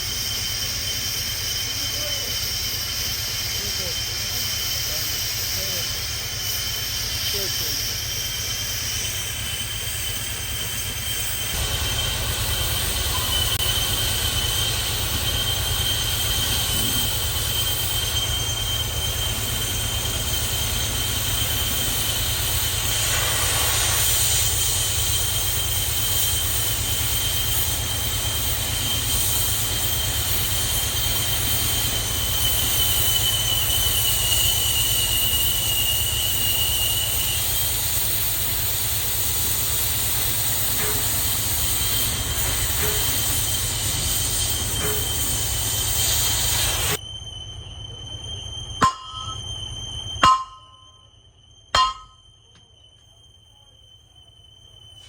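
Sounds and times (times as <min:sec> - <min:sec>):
low machine rumble: 0:00.0 - 0:23.1
tool whining on metal: 0:00.0 - 0:51.1, 0:51.7 - 0:52.7.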